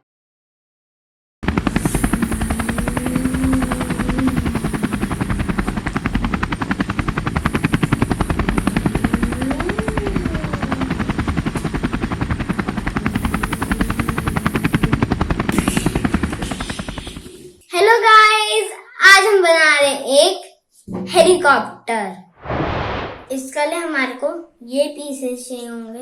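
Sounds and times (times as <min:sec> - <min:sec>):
helicopter rotor blades chopping: 0:01.4 - 0:17.6
faint rising and falling tone: 0:01.8 - 0:06.2, 0:07.4 - 0:11.7.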